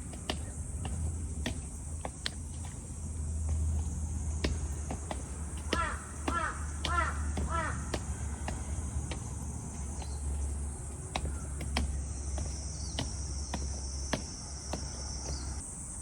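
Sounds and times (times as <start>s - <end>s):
footsteps on steps: 0.0s - 15.6s
crow cawing: 5.6s - 9.0s.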